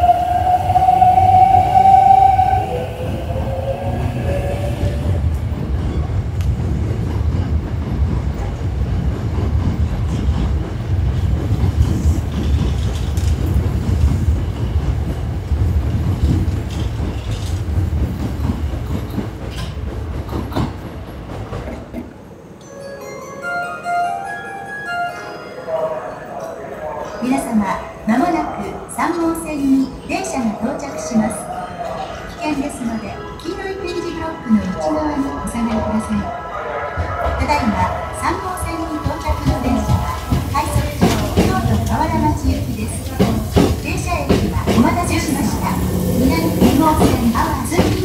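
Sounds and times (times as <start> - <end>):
high wavering tones: 0.0 - 5.4, 44.8 - 47.9
electric train rumbling: 0.0 - 22.7, 27.3 - 48.0.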